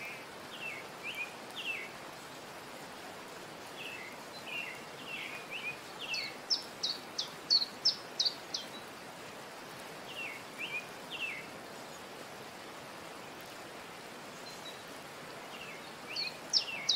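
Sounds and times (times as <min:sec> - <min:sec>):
steady hiss: 0:00.0 - 0:16.9
birds chirping: 0:03.8 - 0:08.8, 0:15.5 - 0:16.9.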